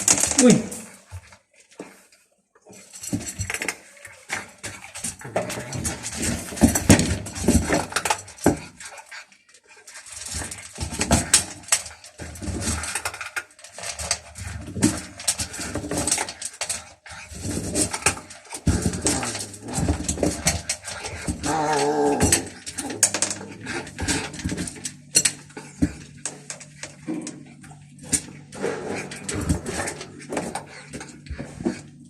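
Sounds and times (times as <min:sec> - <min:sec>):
food dishes scraping and knocking: 0:09.9 - 0:32.0.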